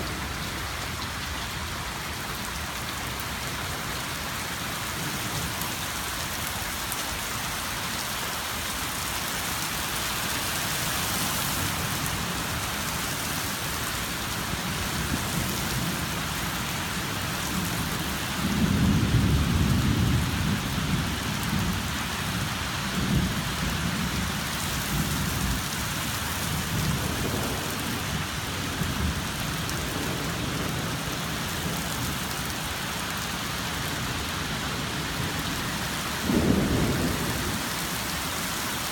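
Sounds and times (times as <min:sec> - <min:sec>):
heavy rain falling: 0:00.0 - 0:38.9
rolling thunder: 0:36.2 - 0:37.6.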